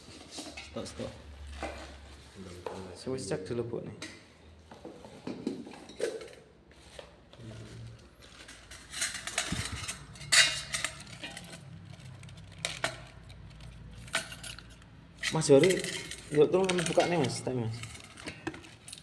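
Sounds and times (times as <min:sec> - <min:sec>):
blender parts clinking and knocking: 0:08.2 - 0:19.0.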